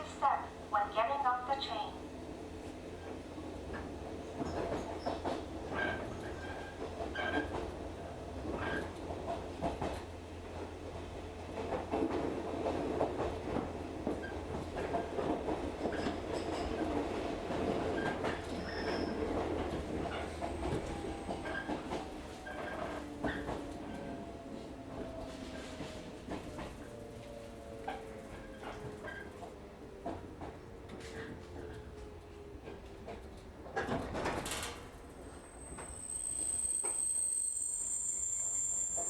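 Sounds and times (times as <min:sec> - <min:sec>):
train rumble and hum: 0:00.0 - 0:39.0
wheels clicking over rail joints: 0:03.1 - 0:36.2
wheels squealing: 0:18.0 - 0:29.4, 0:35.3 - 0:39.0.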